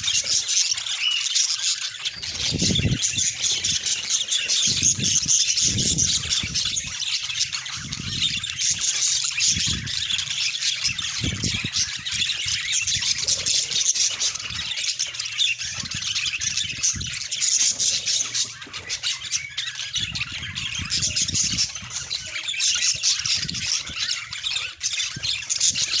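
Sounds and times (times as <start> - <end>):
budgies chattering and squawking: 0.0 - 26.0.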